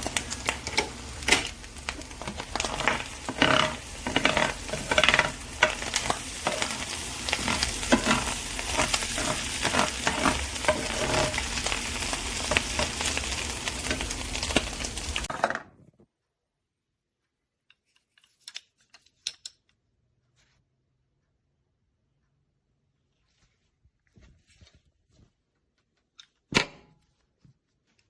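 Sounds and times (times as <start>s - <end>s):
food sizzling in a pan: 0.0s - 15.3s
utensil stirring in a pan: 0.0s - 15.3s.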